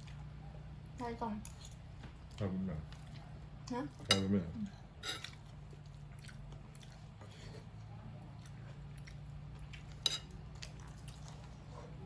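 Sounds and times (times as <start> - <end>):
cutlery clicking on a plate: 10.0 - 10.3.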